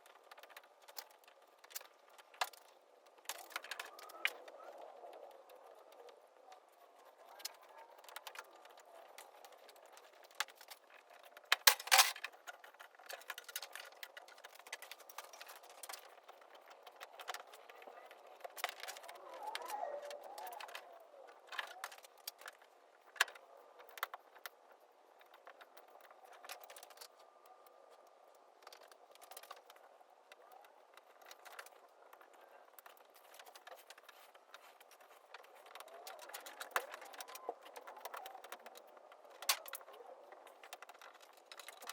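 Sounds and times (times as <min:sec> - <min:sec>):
hand tools clicking and scraping: 0:00.1 - 0:41.9.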